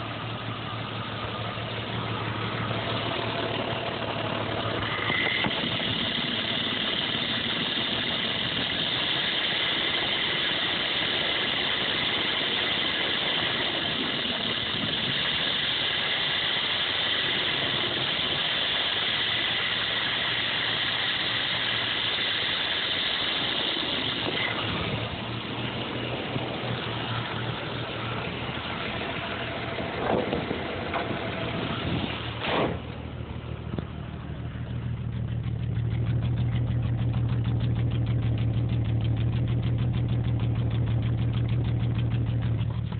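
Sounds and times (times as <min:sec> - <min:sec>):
car engine idling roughly: 0:00.0 - 0:42.9
steady hiss: 0:04.8 - 0:29.8.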